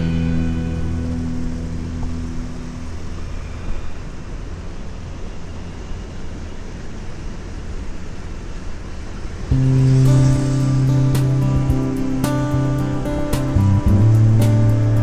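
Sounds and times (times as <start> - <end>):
wind and road noise rumble: 7.4 - 15.0.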